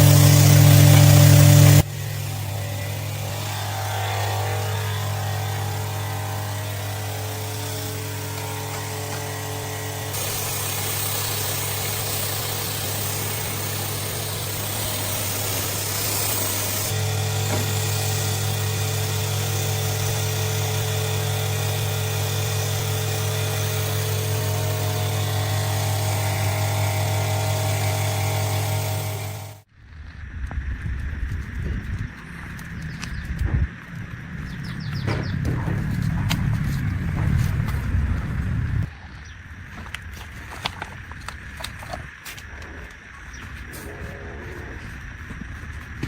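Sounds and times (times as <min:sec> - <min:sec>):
motor-driven machine humming: 0:00.0 - 0:46.0.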